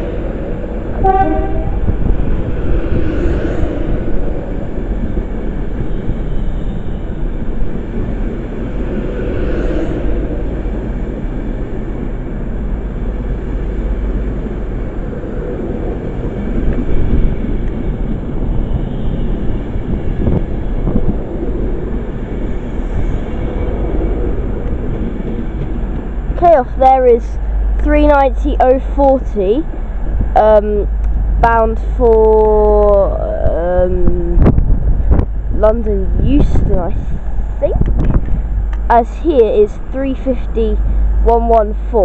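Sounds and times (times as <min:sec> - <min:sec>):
train wheels rumbling: 0:00.0 - 0:28.4.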